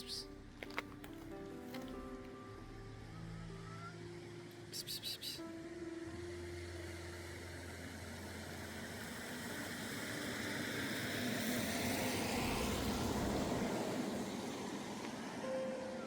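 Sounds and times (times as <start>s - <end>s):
vehicle passing by: 6.2s - 16.0s.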